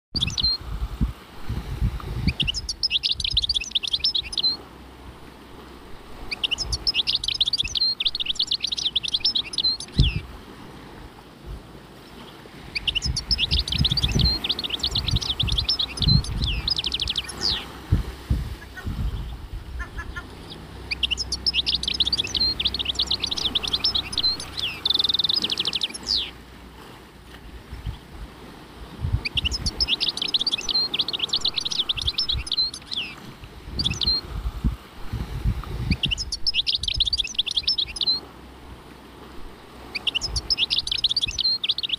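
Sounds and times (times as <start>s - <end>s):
songbird singing high phrase: 0.1s - 0.6s, 2.2s - 4.6s, 6.2s - 10.3s, 12.7s - 17.8s, 18.6s - 26.4s, 29.2s - 33.2s, 33.8s - 34.3s, 35.9s - 38.3s, 40.0s - 41.9s
low rumbles and thumps: 17.8s - 20.2s.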